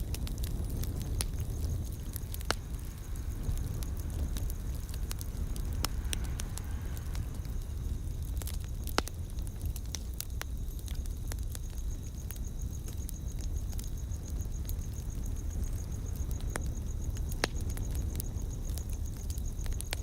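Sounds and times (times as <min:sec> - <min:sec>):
low steady rumble: 0:00.0 - 0:10.5
wood fire crackling: 0:00.0 - 0:20.0.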